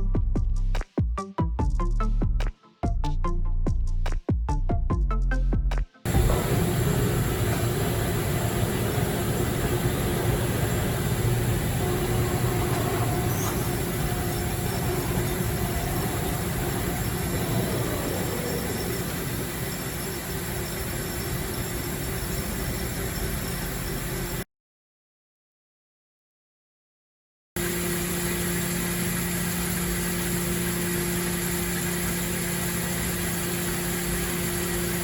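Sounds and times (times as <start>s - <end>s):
faint steady tones: 6.1s - 24.4s
lathe humming and whirring: 6.1s - 24.4s, 27.6s - 35.0s.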